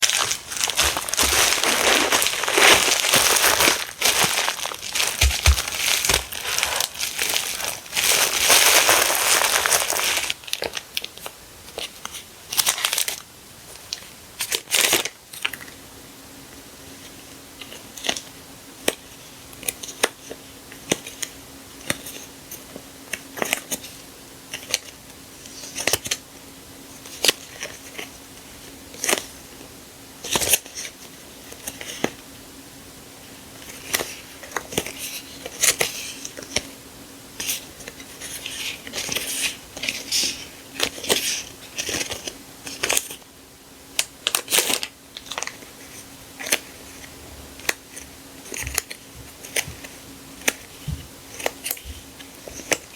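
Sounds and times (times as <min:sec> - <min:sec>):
paper and plastic crinkling: 0:00.0 - 0:15.7, 0:33.6 - 0:36.7, 0:37.4 - 0:43.2, 0:44.0 - 0:52.9
faint steady hum: 0:00.0 - 0:52.9.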